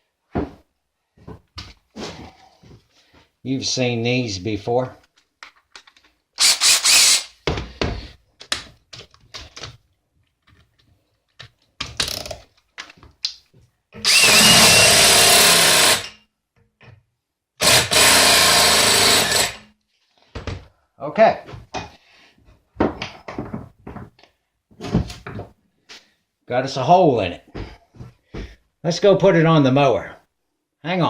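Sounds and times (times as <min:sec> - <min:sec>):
power drill boring hole: 0:06.4 - 0:07.3, 0:14.0 - 0:16.2, 0:17.6 - 0:19.6
handling clatter and knocks: 0:22.7 - 0:25.6.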